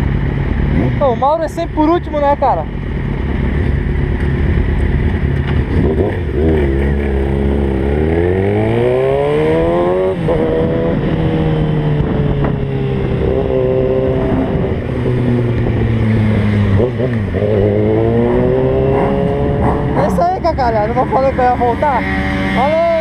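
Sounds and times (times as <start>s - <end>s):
motorcycle engine pulling away: 5.1s - 20.1s.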